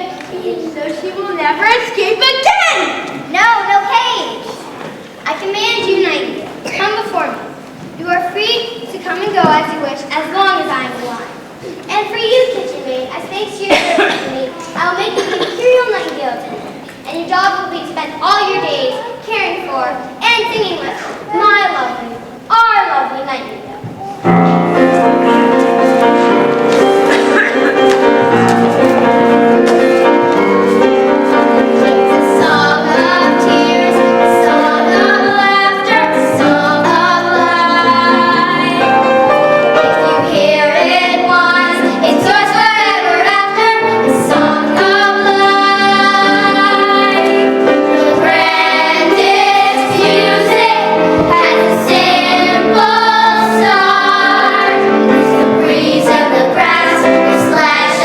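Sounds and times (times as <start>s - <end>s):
children singing: 24.0s - 58.0s.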